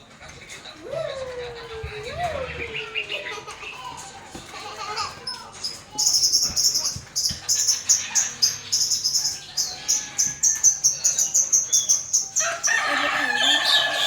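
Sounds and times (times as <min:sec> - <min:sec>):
small birds chirping: 0:00.0 - 0:14.0
rooster crowing loudly: 0:12.4 - 0:14.0.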